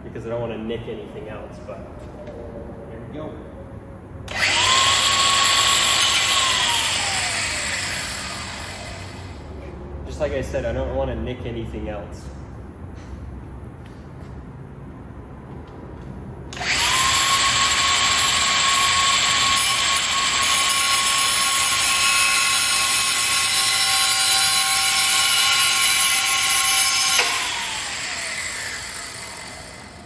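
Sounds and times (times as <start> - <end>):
electric grinder cutting steel: 4.3 - 9.4, 16.5 - 30.0.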